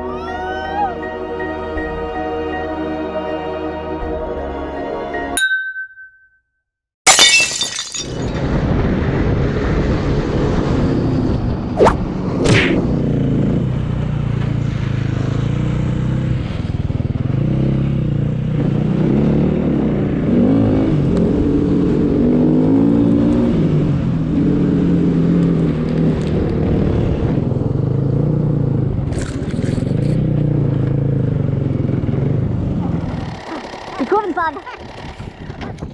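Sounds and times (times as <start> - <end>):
snowbike engine revving: 14.9 - 35.6
track scraping through snow: 29.0 - 31.0.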